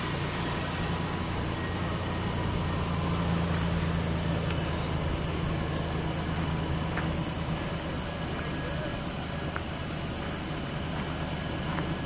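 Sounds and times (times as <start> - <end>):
car engine idling: 0.0 - 12.0
high-pitched hiss: 0.0 - 12.0.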